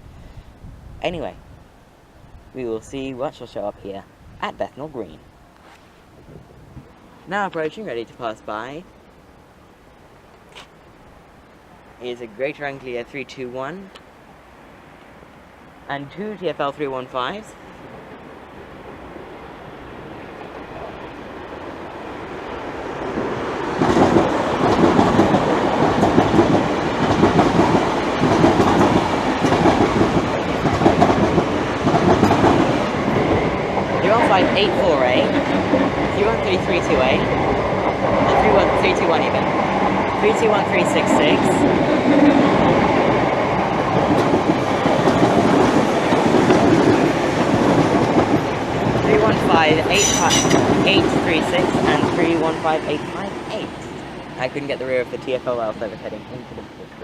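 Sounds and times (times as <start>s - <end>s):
train rumble: 16.0s - 57.0s
wheels clattering over rail joints: 23.8s - 34.6s, 41.2s - 52.2s.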